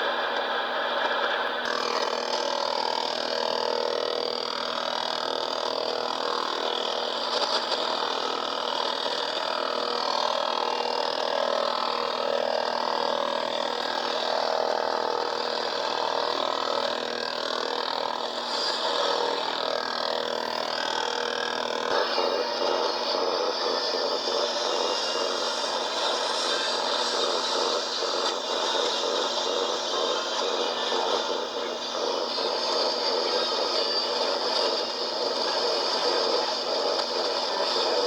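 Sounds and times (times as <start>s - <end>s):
faint steady tones: 20.8s - 38.0s
radio static and hiss: 24.5s - 38.0s.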